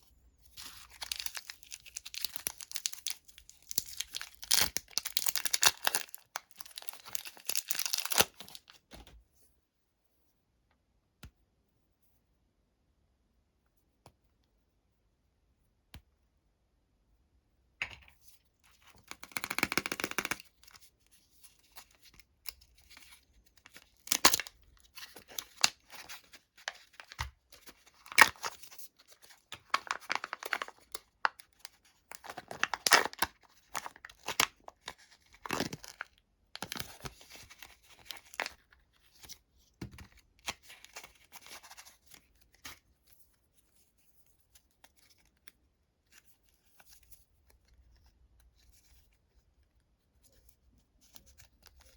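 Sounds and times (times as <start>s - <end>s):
candy wrappers tearing: 0.6s - 8.8s, 19.0s - 20.7s, 22.5s - 38.6s
wrappers crinkling: 0.8s - 8.7s, 23.6s - 26.0s, 29.6s - 31.1s.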